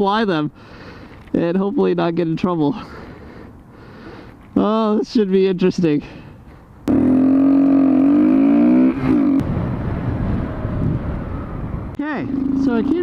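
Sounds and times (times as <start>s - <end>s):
road noise: 0.0s - 13.0s
motorcycle engine at high revs: 6.9s - 9.5s
wind noise: 8.4s - 13.0s.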